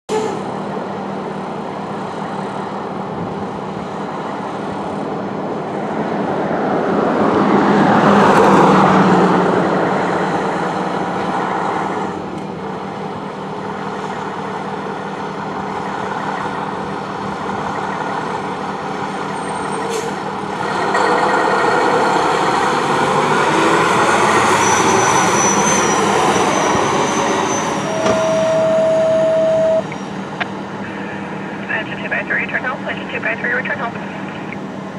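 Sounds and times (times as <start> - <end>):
road traffic: 0.1 - 34.9
fire engine passing: 0.2 - 34.9
short steady tone: 27.8 - 30.0.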